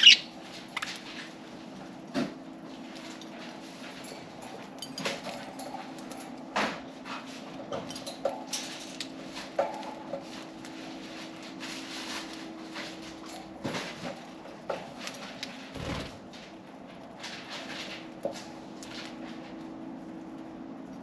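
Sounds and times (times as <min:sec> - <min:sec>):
budgerigars chirping: 0:00.0 - 0:00.3.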